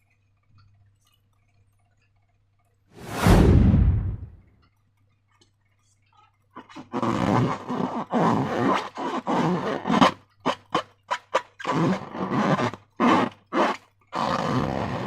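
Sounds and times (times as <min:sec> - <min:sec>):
loud sudden noise burst: 0:03.0 - 0:04.4.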